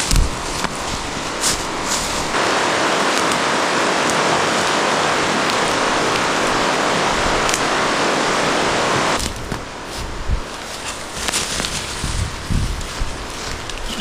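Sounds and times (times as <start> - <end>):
river rapids rushing: 0.0 - 9.9.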